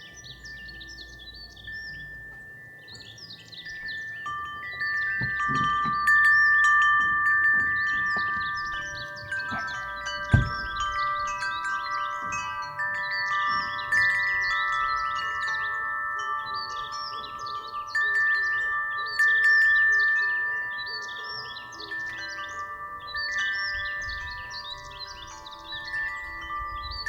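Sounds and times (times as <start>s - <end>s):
wind chimes ringing: 0.0s - 27.0s
low thump: 9.5s - 11.0s.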